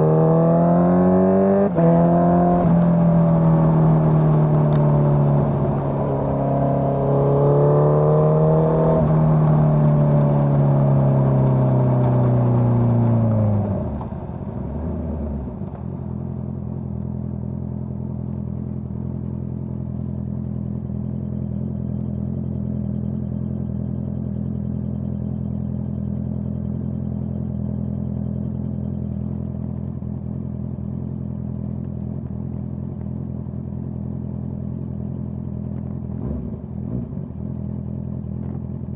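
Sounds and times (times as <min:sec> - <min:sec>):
motorcycle engine revving: 0:00.0 - 0:13.8
motorcycle engine idling: 0:16.0 - 0:38.9.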